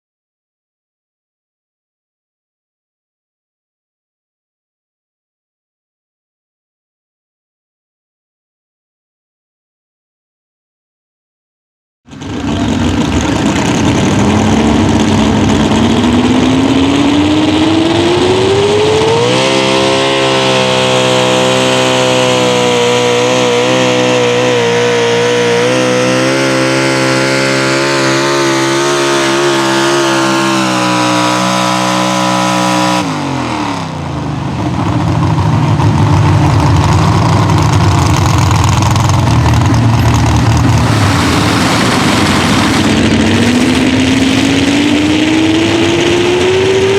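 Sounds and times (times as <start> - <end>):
truck engine at full throttle: 12.1 - 46.9.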